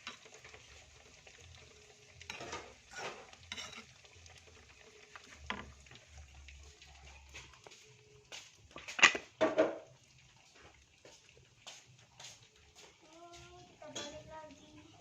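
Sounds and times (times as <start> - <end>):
food sizzling in a pan: 0.0 - 15.0
spatula scraping a pan: 2.2 - 4.4.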